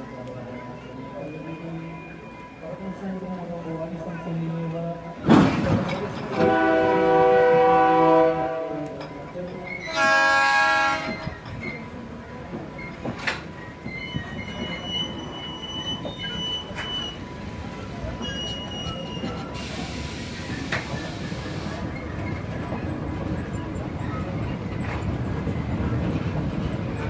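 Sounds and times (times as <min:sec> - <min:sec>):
train carriages rumbling on rails: 0:03.2 - 0:27.0
train horn blasts: 0:06.4 - 0:09.0, 0:09.8 - 0:11.4
high wheel squeal: 0:13.6 - 0:22.4.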